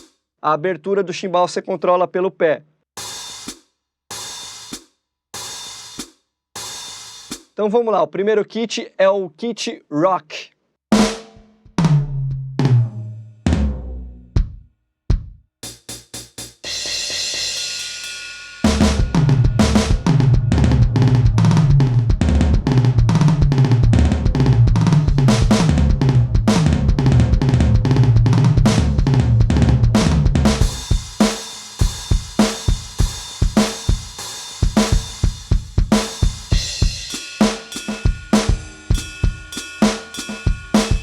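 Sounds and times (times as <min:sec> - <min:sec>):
rock drum groove: 0:03.0 - 0:07.6, 0:10.9 - 0:12.1, 0:14.4 - 0:41.0
cymbal wash: 0:36.6 - 0:41.0.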